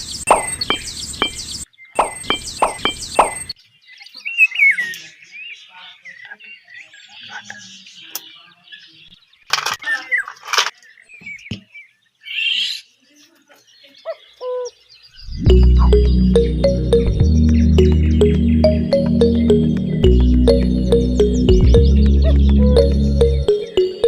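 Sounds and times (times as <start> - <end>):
small birds chirping: 0.0 - 24.0
sharp knocks: 2.0 - 3.5.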